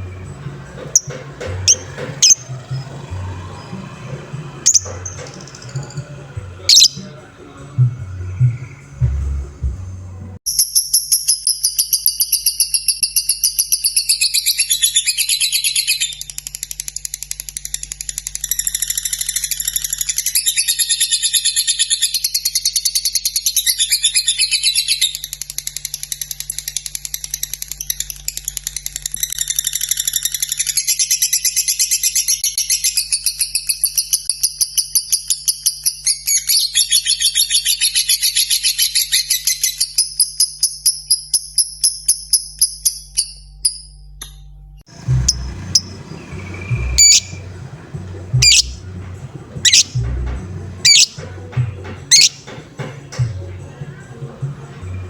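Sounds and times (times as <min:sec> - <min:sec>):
lovebird chattering song: 0:00.0 - 0:07.2, 0:44.9 - 0:52.6.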